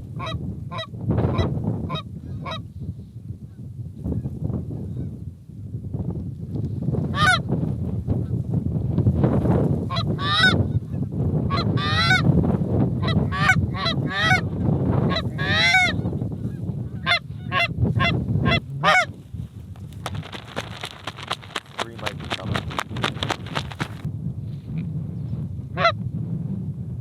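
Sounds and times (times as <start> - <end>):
geese honking and clucking: 9.9 - 10.6, 15.1 - 16.0.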